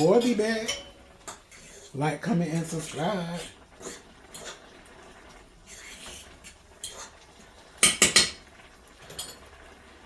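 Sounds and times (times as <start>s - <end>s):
cookware clinking: 0.0s - 1.4s, 7.8s - 8.4s, 9.1s - 9.4s.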